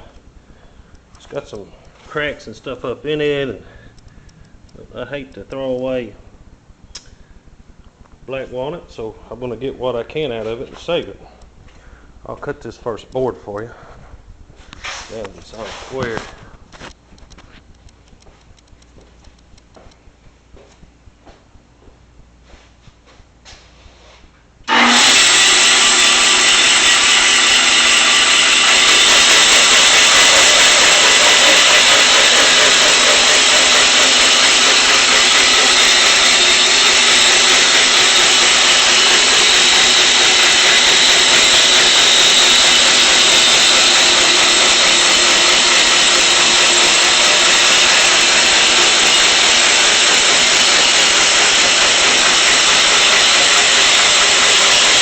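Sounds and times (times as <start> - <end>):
band sawmill cutting log: 24.7 - 55.0.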